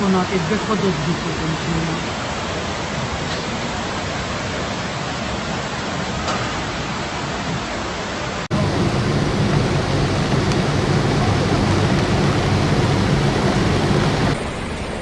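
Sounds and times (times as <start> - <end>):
floodwater rushing: 0.0 - 15.0
low hum: 8.5 - 15.0.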